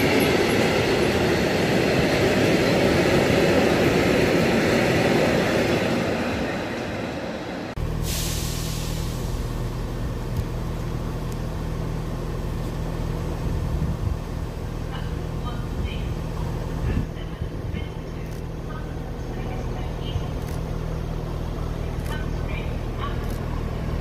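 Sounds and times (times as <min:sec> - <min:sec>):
freight train rumbling: 0:00.0 - 0:24.0
short hiss: 0:08.0 - 0:09.4.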